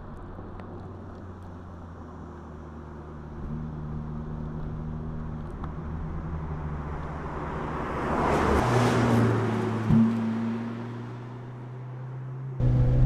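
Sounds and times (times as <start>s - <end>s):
car driving past: 6.1s - 13.0s.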